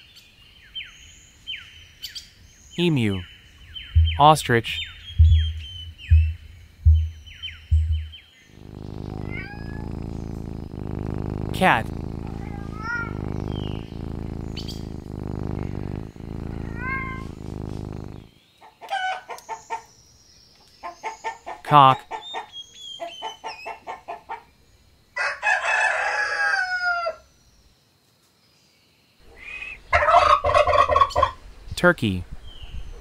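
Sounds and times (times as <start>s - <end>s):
cat purring: 4.0s - 18.3s
cat meowing: 8.6s - 10.6s, 11.8s - 18.0s
rooster crowing: 25.2s - 27.2s
turkey gobbling: 29.9s - 31.3s.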